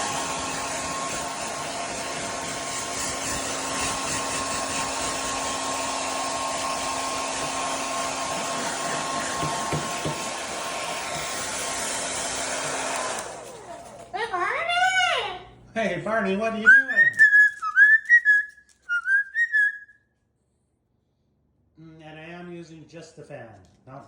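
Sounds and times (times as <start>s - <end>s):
blow dryer running: 0.0s - 14.2s.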